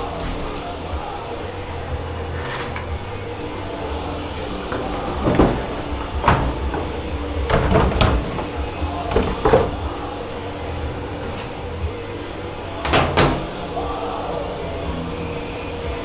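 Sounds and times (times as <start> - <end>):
kitchen machinery humming: 0.0 - 16.0
kitchenware knocking and clattering: 3.8 - 10.1, 12.8 - 13.8.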